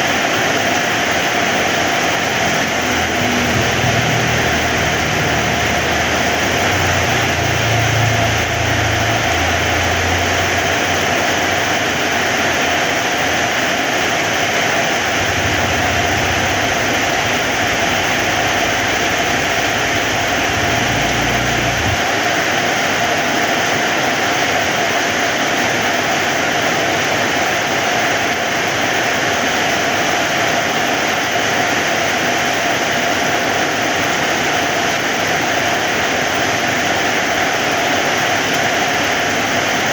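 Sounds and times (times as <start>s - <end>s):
heavy rain falling: 0.0s - 39.9s
low rumble: 2.3s - 12.2s, 14.7s - 22.2s.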